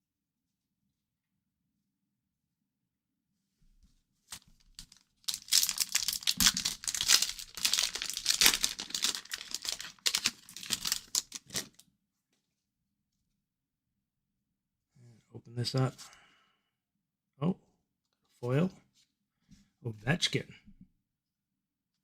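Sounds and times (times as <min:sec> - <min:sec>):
plastic wrapper crinkling and tearing: 0:04.3 - 0:11.8.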